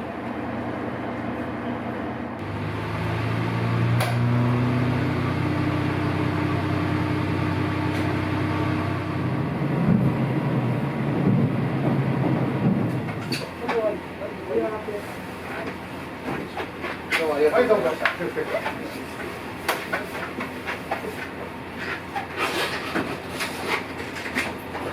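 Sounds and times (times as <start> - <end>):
vehicle engine humming: 1.8 - 14.9.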